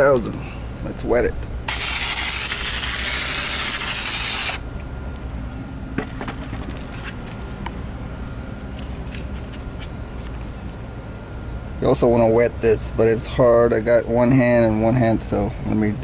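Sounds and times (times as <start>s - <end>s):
spray bottle hissing: 1.7s - 4.6s.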